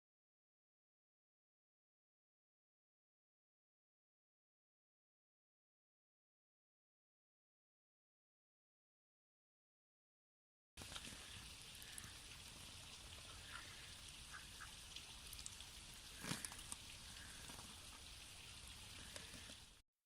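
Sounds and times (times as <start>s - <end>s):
running water hiss: 10.8s - 19.8s
small ticks and splashes: 10.8s - 19.8s.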